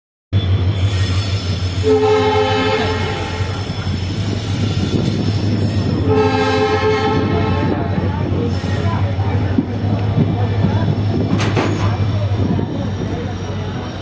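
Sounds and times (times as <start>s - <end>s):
train rumbling: 0.4s - 14.0s
train horn blasts: 1.8s - 3.6s, 6.0s - 7.9s.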